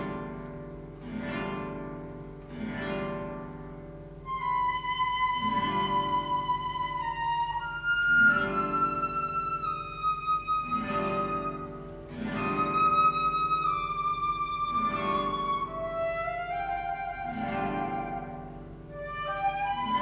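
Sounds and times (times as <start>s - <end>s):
guitar chords: 0.0s - 20.0s
flute sustained notes: 4.2s - 20.0s.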